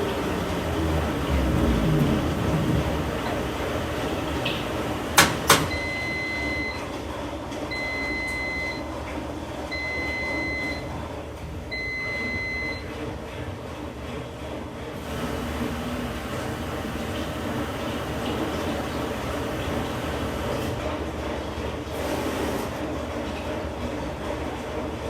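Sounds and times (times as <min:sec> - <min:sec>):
machine hum: 0:00.0 - 0:06.8, 0:15.0 - 0:20.9
washing machine long beeps: 0:00.0 - 0:13.2, 0:15.0 - 0:21.0.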